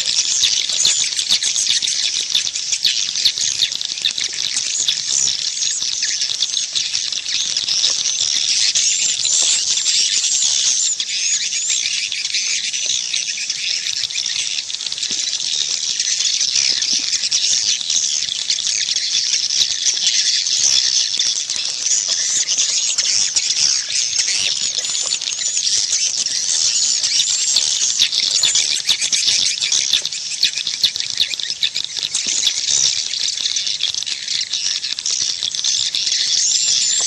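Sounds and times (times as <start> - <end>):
swiftlets twittering: 16.0 - 32.5.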